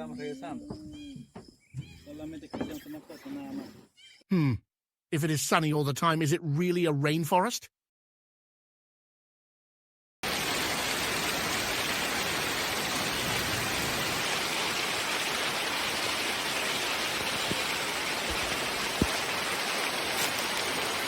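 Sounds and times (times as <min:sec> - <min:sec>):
steady rain falling: 0:10.2 - 0:21.0.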